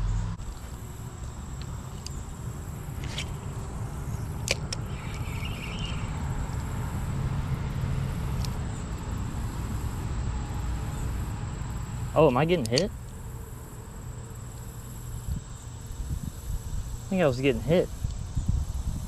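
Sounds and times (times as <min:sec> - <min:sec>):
road traffic rumble: 0:00.0 - 0:19.0
sharp clicks: 0:00.4 - 0:06.7, 0:11.8 - 0:13.6.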